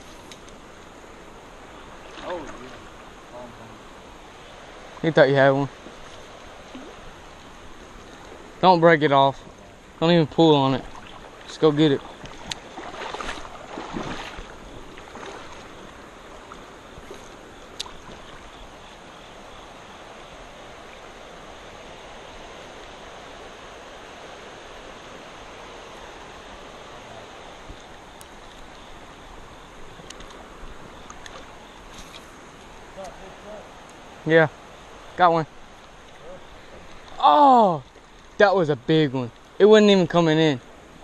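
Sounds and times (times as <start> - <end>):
water sloshing: 0.0 - 8.6, 9.3 - 19.6
creek water running over rocks: 0.0 - 41.0.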